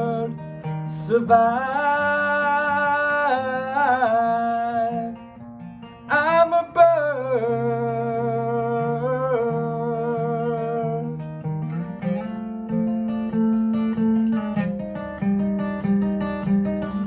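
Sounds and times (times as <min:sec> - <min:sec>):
acoustic guitar: 0:00.0 - 0:17.0
person singing wordless notes: 0:06.1 - 0:11.1.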